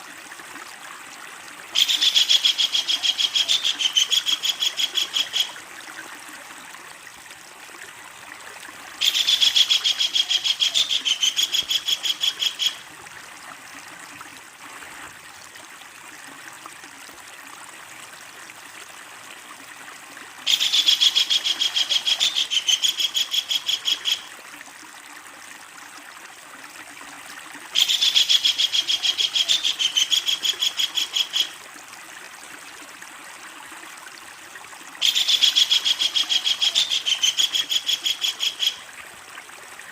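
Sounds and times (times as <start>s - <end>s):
kingfisher rattling call: 1.8s - 5.6s, 9.0s - 12.8s, 20.5s - 24.2s, 27.8s - 31.5s, 35.0s - 38.8s.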